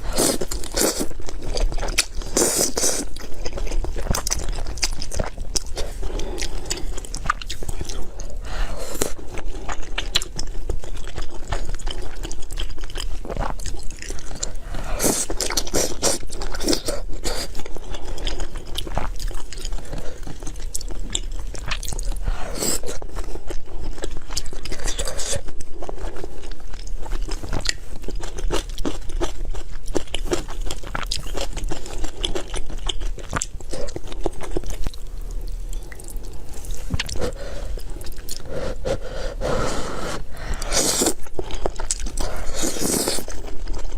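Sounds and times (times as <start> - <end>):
chewing and crunching: 0.0 - 39.1, 40.2 - 43.9.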